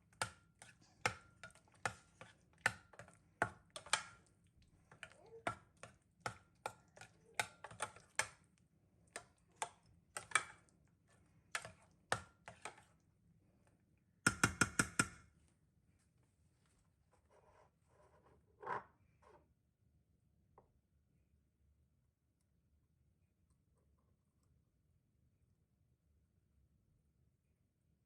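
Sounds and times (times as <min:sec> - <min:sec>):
hard objects clicking and knocking: 0:14.3 - 0:15.2.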